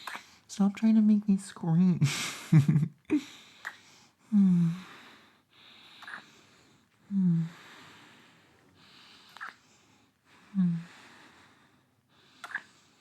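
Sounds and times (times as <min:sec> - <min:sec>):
soft mouth clicks: 0:00.0 - 0:00.3, 0:03.6 - 0:03.8, 0:06.0 - 0:06.3, 0:09.3 - 0:09.6, 0:12.4 - 0:12.8.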